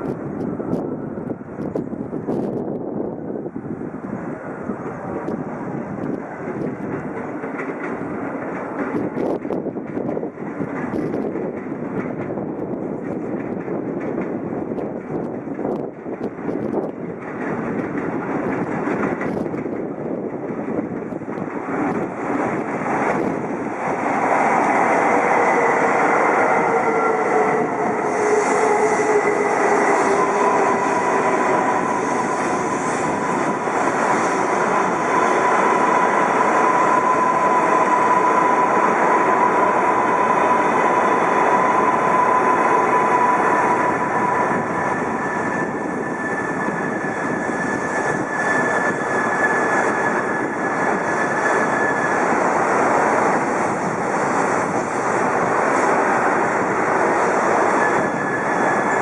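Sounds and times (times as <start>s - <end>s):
train rushing noise: 0.0s - 59.0s
train motor whine: 24.9s - 52.2s.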